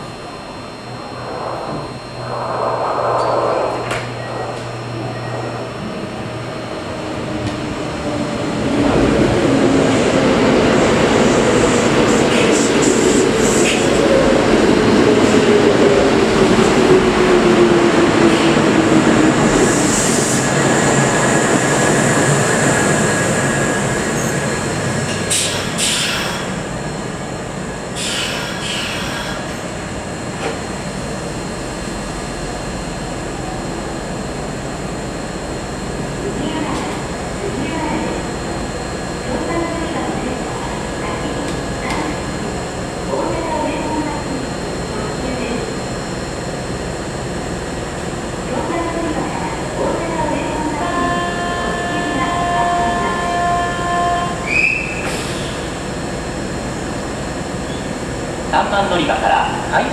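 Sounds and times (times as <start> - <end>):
falling motor whine: 0.0 - 7.8.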